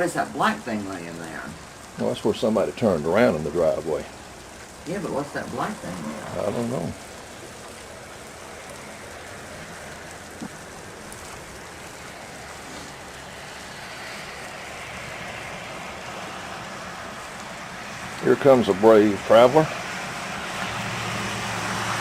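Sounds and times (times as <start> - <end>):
freezing rain pattering: 0.0 - 22.0
hiss: 12.6 - 15.4.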